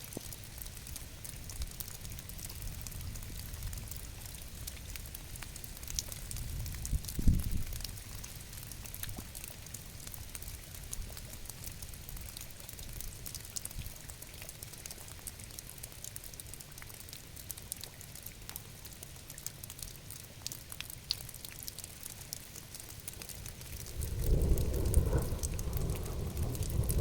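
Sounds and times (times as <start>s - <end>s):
steady rain: 0.0s - 27.0s
low rumble: 23.6s - 27.0s.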